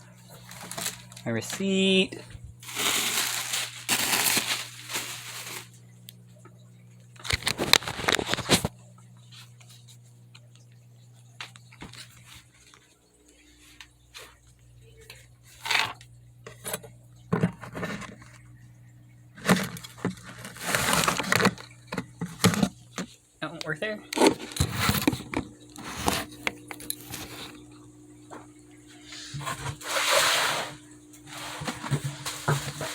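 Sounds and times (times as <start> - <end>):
packaging crinkling and rustling: 0.3 - 1.7, 2.3 - 5.8, 7.2 - 8.7, 19.4 - 23.1, 31.3 - 32.9.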